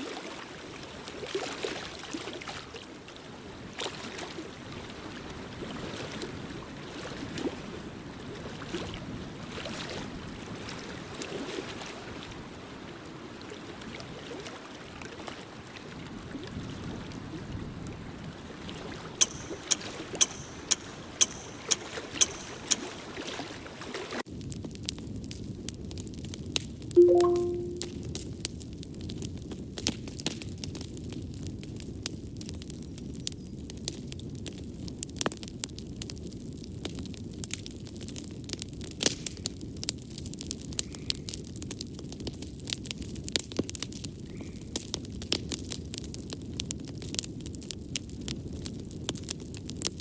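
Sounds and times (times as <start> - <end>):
sharp clicks: 19.2 - 22.9.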